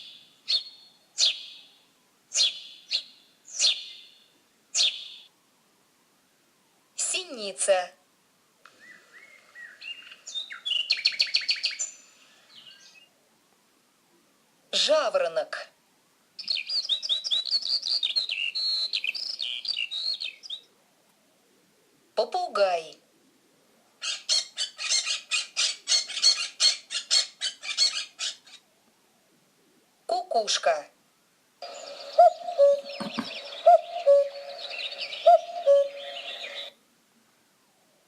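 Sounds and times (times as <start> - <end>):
bird singing: 0.0 - 5.3, 8.8 - 13.1, 16.4 - 20.7, 31.6 - 36.8
parrot squawking: 24.0 - 28.6, 31.6 - 36.7.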